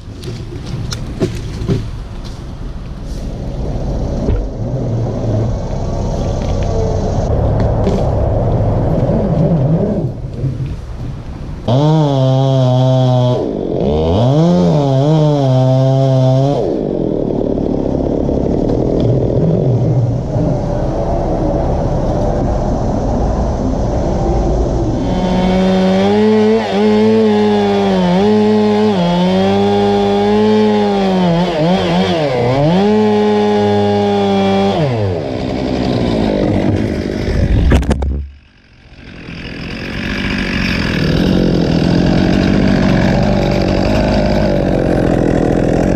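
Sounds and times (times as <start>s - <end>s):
chainsaw running and cutting: 11.6s - 20.7s, 24.9s - 45.9s.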